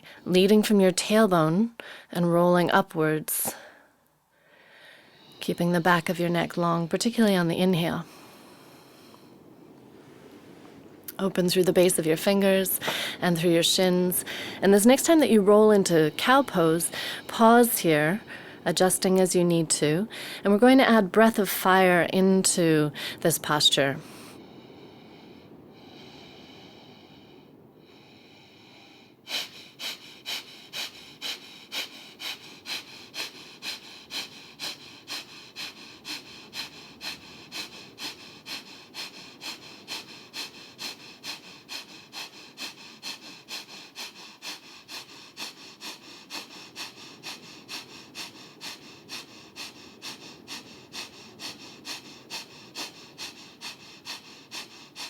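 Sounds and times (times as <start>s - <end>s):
rapid nasal breathing: 3.4s - 6.3s, 8.0s - 10.9s, 11.8s - 21.7s, 22.6s - 55.0s.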